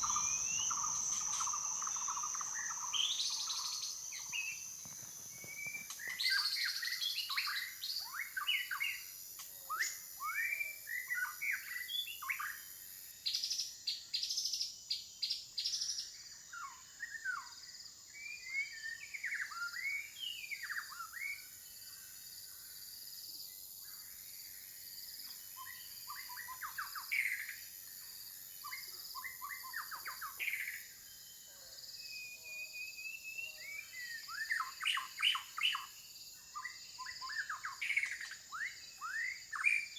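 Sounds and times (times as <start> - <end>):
high-pitched whine: 0.0 - 6.0
forest birds chirping: 0.0 - 39.9.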